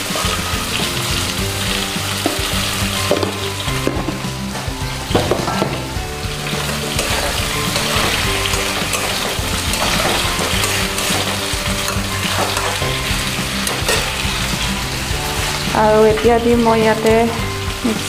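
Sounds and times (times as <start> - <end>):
food sizzling in hot oil: 0.0 - 18.0
metal clinks against a pan: 6.6 - 14.3.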